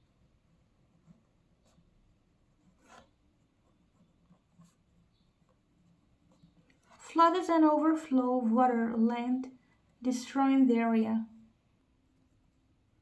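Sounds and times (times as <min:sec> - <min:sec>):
pen scratching on paper: 0:00.4 - 0:07.2.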